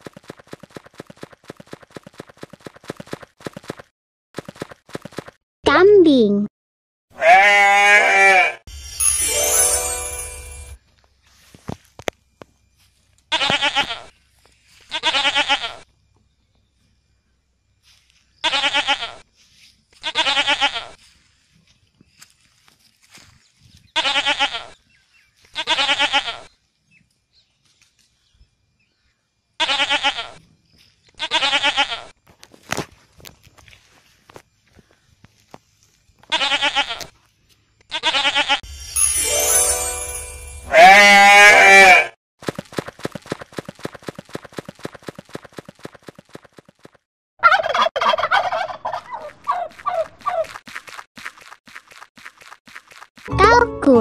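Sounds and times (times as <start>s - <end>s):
goat bleating: 7.2s - 8.6s, 13.3s - 14.1s, 14.9s - 15.8s, 18.4s - 19.2s, 20.0s - 21.0s, 24.0s - 24.8s, 25.5s - 26.5s, 29.6s - 30.4s, 31.2s - 32.1s, 36.3s - 37.1s, 37.9s - 38.6s, 40.7s - 42.1s
turkey gobbling: 47.4s - 50.5s
turkey clicking: 47.4s - 50.6s.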